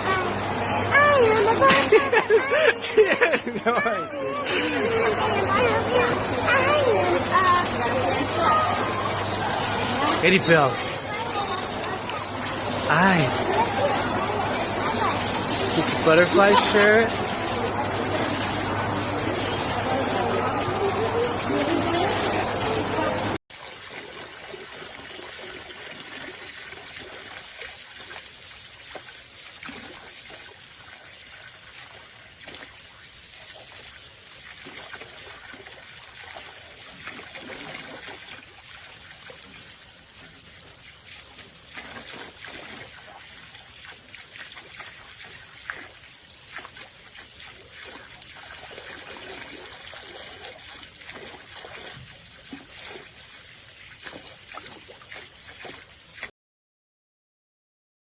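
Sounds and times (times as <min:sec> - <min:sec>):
water trickling: 0:00.0 - 0:56.3
small splashy ticks: 0:11.1 - 0:12.8, 0:23.6 - 0:56.3.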